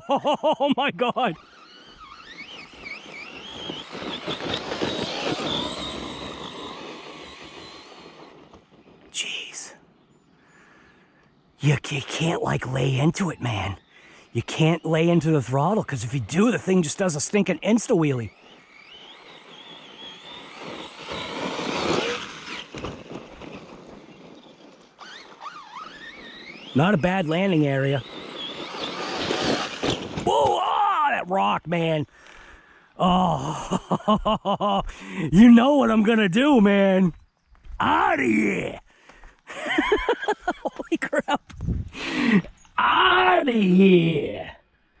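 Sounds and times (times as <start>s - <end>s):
tyres churning dirt: 0.0s - 9.9s, 10.5s - 44.5s
electric motor whining: 1.2s - 9.1s, 16.4s - 30.3s.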